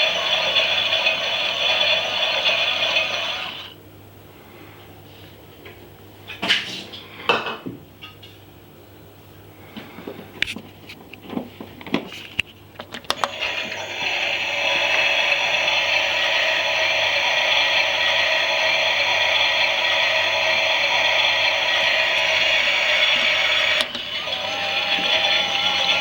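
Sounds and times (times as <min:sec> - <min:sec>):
small motor whirring: 0:13.1 - 0:26.0.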